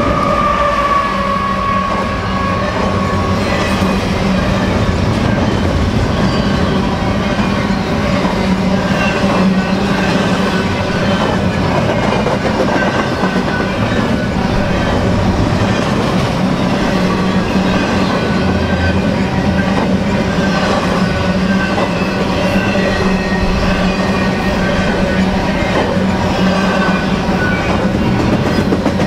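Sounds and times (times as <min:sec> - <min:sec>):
train wheels rumbling on rail: 0:00.0 - 0:29.0
clickety-clack over rail joints: 0:02.6 - 0:29.0
faint high wheel squeal: 0:16.5 - 0:28.4.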